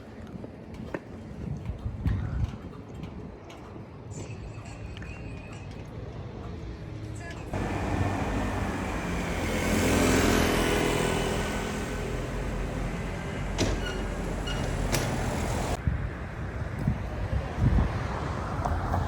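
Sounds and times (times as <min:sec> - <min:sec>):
dull street hum: 0:06.0 - 0:19.0
vehicle passing: 0:07.5 - 0:15.8.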